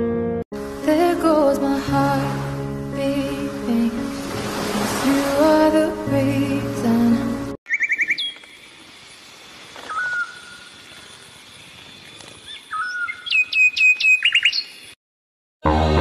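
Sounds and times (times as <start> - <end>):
songbird singing: 7.7 - 9.1, 9.8 - 15.0.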